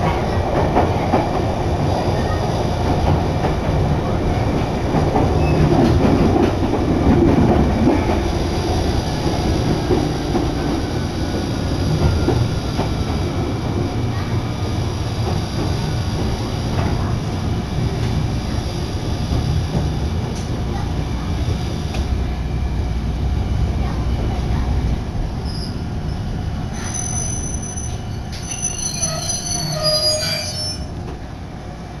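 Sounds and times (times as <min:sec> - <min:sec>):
train running rumble: 0:00.0 - 0:32.0
wheels and brakes squealing: 0:25.4 - 0:25.9, 0:26.7 - 0:31.0.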